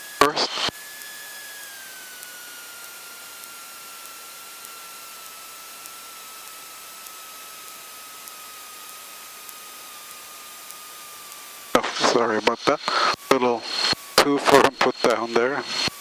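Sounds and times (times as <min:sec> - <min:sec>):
aircraft cabin hiss: 0:11.8 - 0:15.9.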